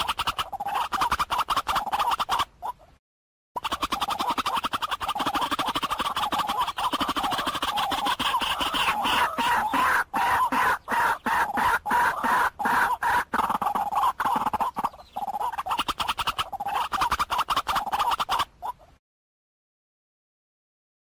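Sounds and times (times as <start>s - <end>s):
waterhen calling harsh notes: 3.6s - 18.8s.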